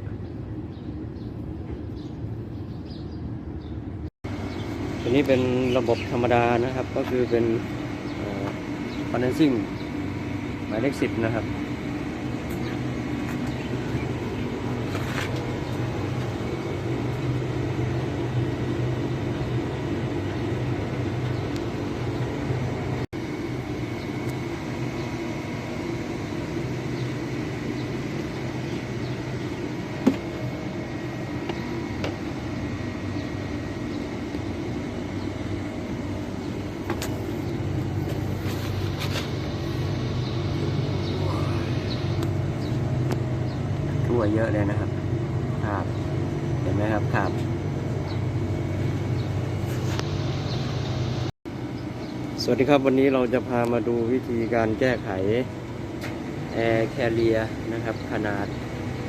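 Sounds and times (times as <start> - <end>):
low mechanical hum and rumble: 0.0 - 59.0.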